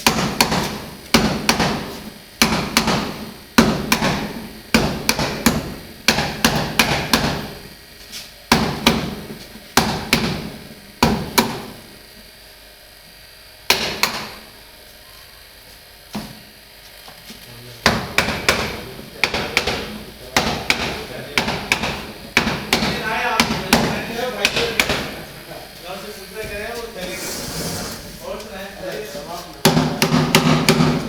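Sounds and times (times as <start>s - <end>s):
knocks on refrigerator panel: 0.0s - 7.5s, 8.5s - 11.8s, 17.9s - 25.2s, 29.7s - 31.0s.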